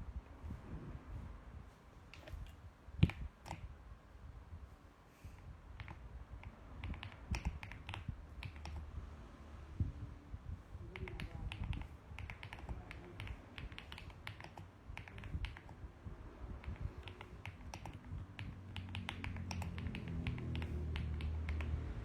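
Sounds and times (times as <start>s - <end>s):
mechanical keyboard typing: 2.1s - 3.7s, 5.8s - 8.9s, 10.9s - 15.8s, 16.6s - 22.0s.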